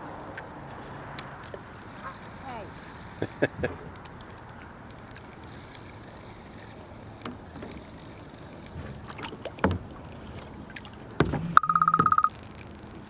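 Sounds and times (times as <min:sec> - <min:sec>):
paddle splashes: 0:00.0 - 0:13.0
kayak knocks: 0:07.1 - 0:12.3.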